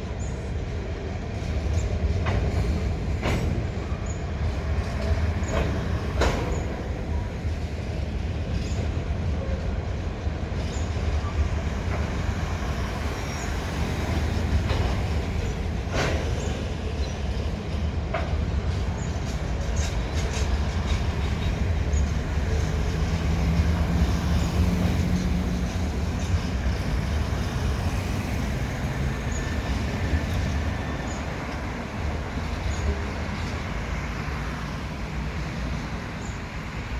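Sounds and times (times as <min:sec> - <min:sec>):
train wagons rumbling: 0:00.0 - 0:36.9
wheels clicking on rails: 0:01.2 - 0:36.4.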